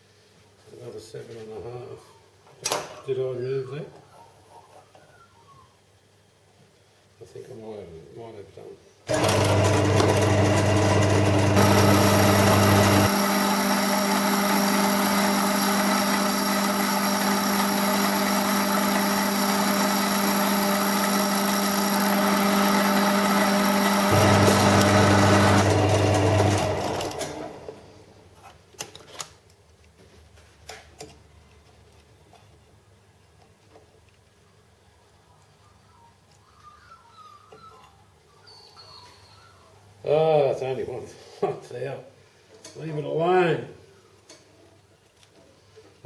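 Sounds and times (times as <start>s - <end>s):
metal lathe motor whine: 9.1s - 27.7s.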